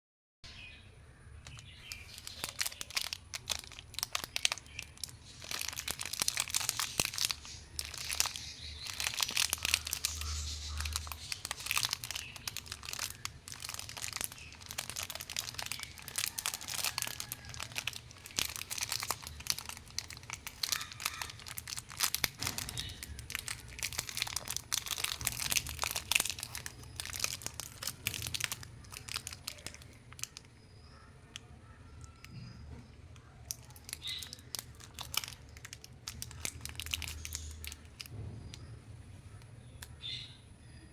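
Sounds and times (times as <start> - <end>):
plastic wrapper crinkling: 1.4 - 38.6.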